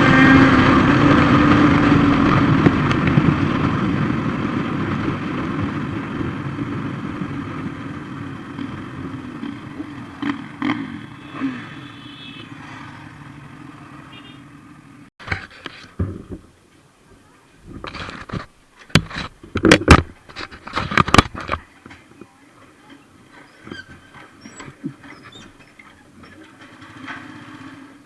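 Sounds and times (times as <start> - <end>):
motorcycle engine running: 0.0 - 14.8.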